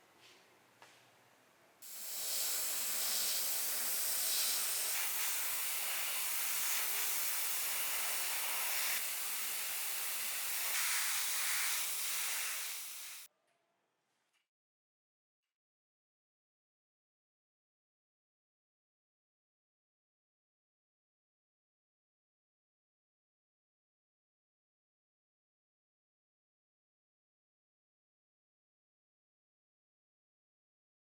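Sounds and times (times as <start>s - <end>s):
pressurised spray hissing: 1.8s - 13.3s.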